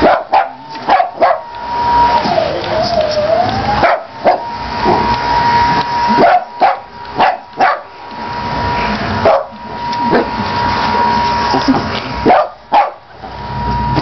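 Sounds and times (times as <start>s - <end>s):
dog barking: 0.0s - 1.5s, 3.8s - 4.5s, 6.2s - 7.9s, 9.2s - 10.3s, 12.2s - 13.1s
carpet cleaner motor whine: 0.0s - 14.0s.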